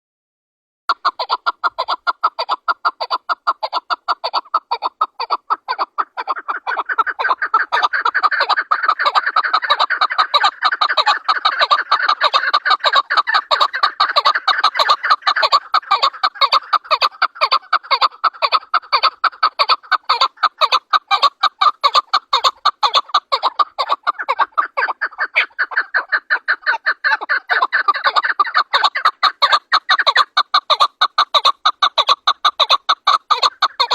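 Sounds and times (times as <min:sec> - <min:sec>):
partridge clucking calls: 0:00.9 - 0:33.9.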